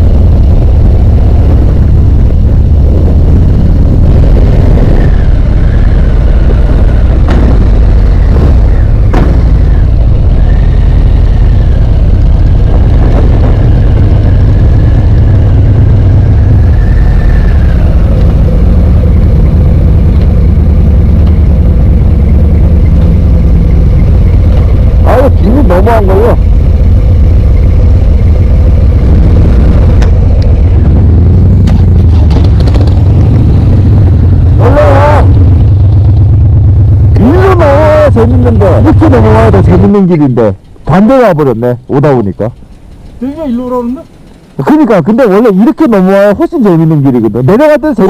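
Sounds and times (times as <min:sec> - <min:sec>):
motorcycle engine running loudly: 0:00.0 - 0:41.6, 0:42.3 - 0:46.6.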